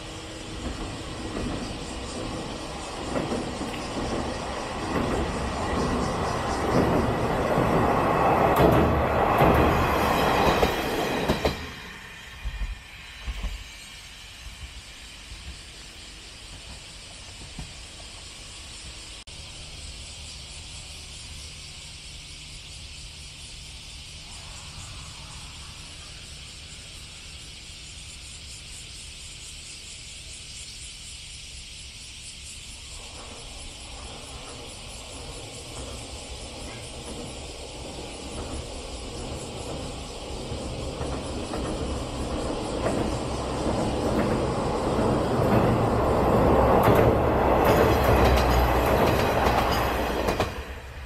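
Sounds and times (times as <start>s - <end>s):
wheels clacking over rail joints: 0.0s - 12.6s, 33.0s - 51.0s
diesel railcar rumbling on bridge: 0.0s - 29.2s, 32.3s - 51.0s
distant electric train approaching: 0.0s - 51.0s
insects chirring: 0.0s - 51.0s.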